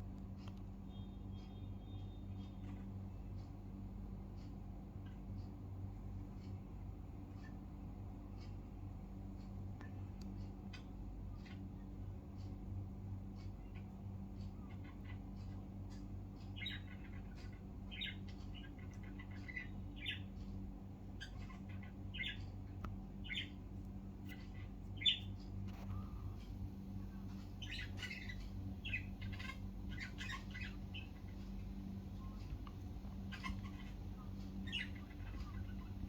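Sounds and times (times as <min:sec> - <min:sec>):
steady low hum: 0:00.0 - 0:36.0
budgerigar chirps and squawks: 0:14.6 - 0:20.3, 0:27.6 - 0:31.5, 0:33.1 - 0:36.0.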